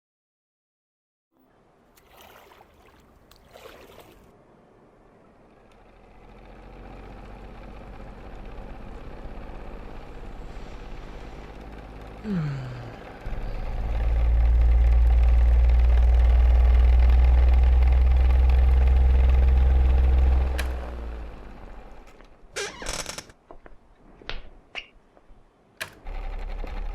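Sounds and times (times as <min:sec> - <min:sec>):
low machine hum: 0:03.7 - 0:22.5.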